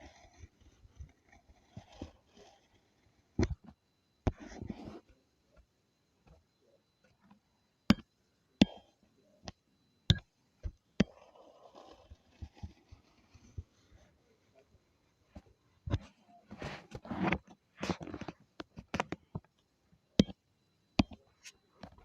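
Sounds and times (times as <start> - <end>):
soft rustling or scraping: 4.4 - 5.1, 15.3 - 18.4.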